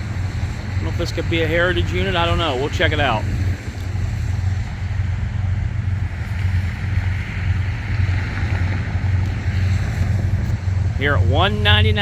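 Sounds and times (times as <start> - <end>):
diesel locomotive rumble: 0.0 - 12.0.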